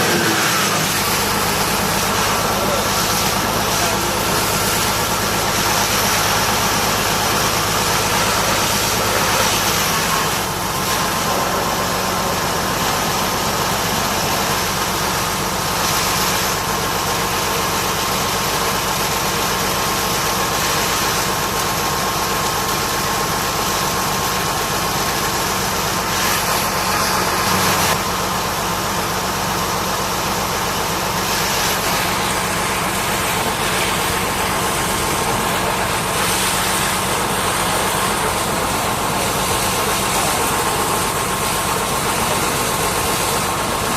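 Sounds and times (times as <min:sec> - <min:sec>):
pressure washer spraying hiss: 0:00.0 - 0:17.3, 0:29.7 - 0:43.9
engine idling: 0:00.0 - 0:43.9.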